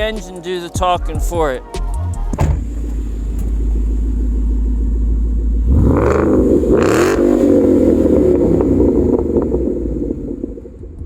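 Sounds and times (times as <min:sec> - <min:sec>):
car engine burbling and revving: 0:01.9 - 0:11.0.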